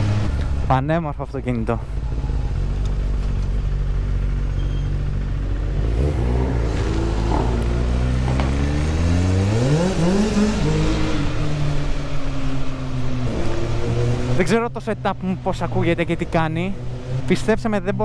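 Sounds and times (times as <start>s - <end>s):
vehicle engine accelerating: 0.0s - 18.0s.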